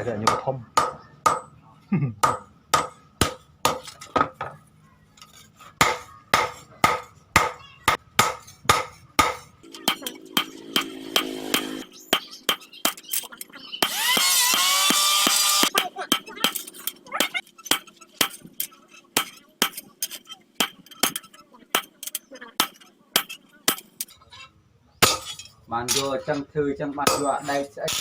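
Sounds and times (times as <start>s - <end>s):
hammer striking steel on anvil: 0.0s - 1.6s, 2.2s - 4.3s, 5.8s - 13.2s, 13.8s - 24.2s, 25.0s - 26.1s, 27.0s - 28.0s.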